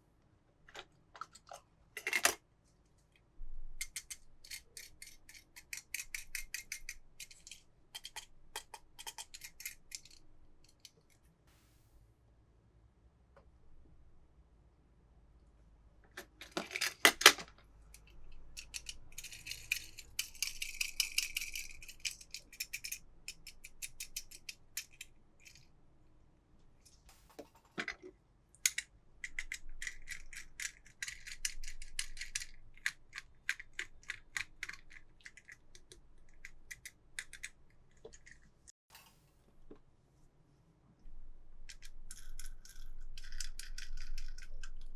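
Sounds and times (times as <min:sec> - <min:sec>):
toy cars rattling and clicking: 0:03.8 - 0:11.0, 0:16.2 - 0:25.7, 0:28.6 - 0:38.5, 0:41.7 - 0:44.9.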